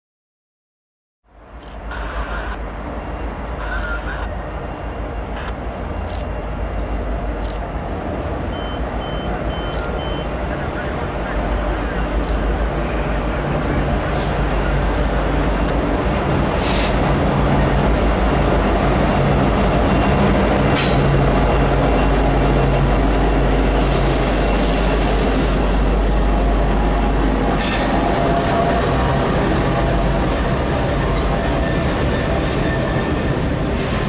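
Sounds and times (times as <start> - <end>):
diesel locomotive engines rumbling: 1.3 - 34.0
freight cars rolling by: 1.8 - 34.0
high wheel squeal: 19.6 - 28.8.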